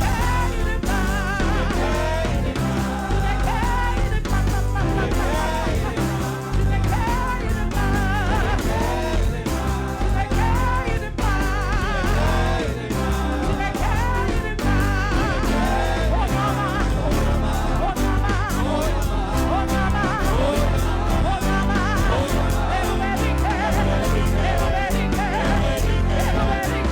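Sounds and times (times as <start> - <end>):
gospel singer with band: 0.0 - 26.9
heavy pulsing bass: 0.0 - 26.9.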